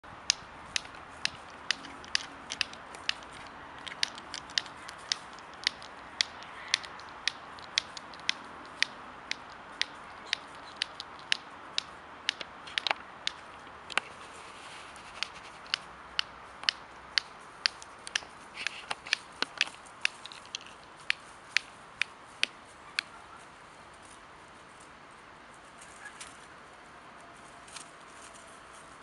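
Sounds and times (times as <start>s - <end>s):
walnuts knocking together: 0.2s - 14.0s, 15.7s - 21.6s.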